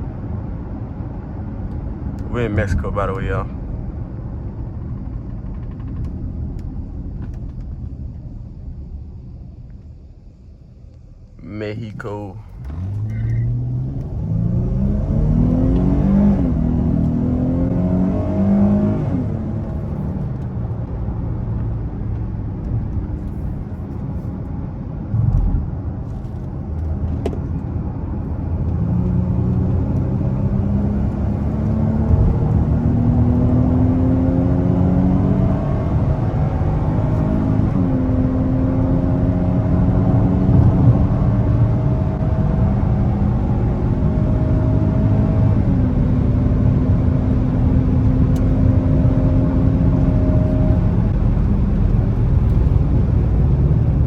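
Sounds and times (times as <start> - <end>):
car engine accelerating hard: 12.5 - 23.4, 25.0 - 54.0
short thump: 25.1 - 27.5.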